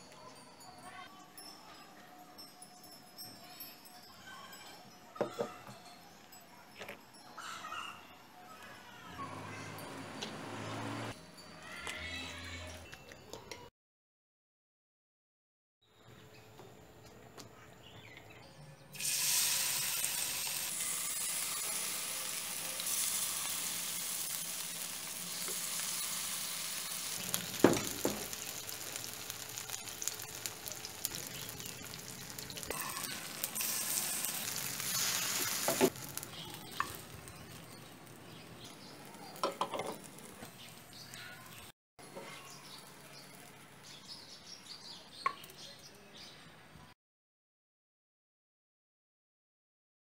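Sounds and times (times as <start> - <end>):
batter sizzling in oil: 19.0 - 41.7.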